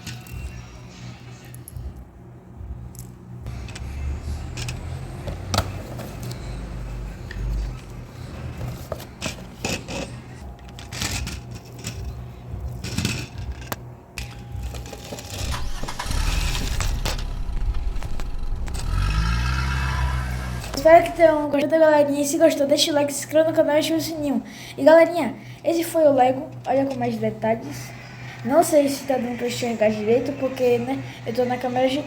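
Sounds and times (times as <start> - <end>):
low handling rumble: 15.3 - 21.6.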